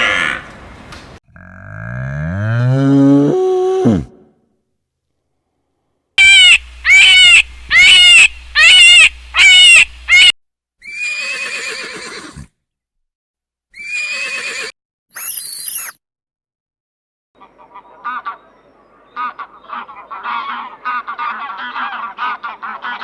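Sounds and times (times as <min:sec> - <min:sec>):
farm animal calling: 0:06.2 - 0:12.2.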